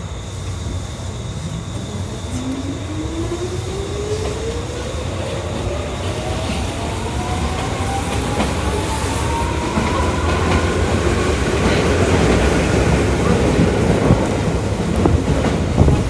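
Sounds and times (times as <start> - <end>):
wheels rumbling on rails: 0.0 - 16.0.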